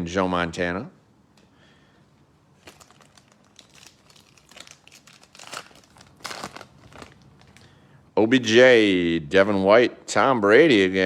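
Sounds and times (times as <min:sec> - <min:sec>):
foil wrapper crinkling and tearing: 0:02.6 - 0:07.8.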